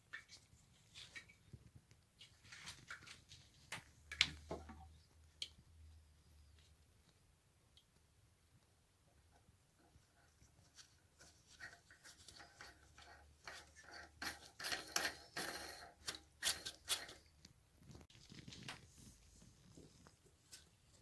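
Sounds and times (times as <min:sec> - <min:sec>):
parts scraping and rustling: 0:10.6 - 0:21.0.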